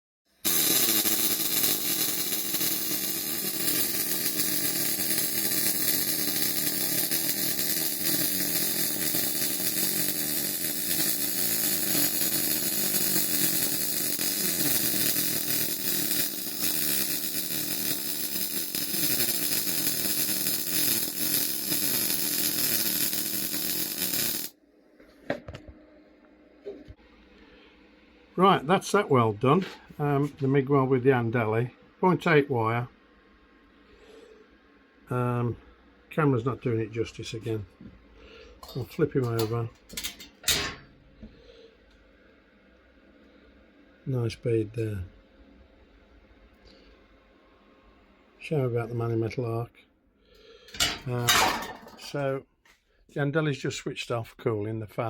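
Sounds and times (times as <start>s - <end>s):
welding arc buzzing: 0.4s - 24.6s, 38.6s - 40.9s.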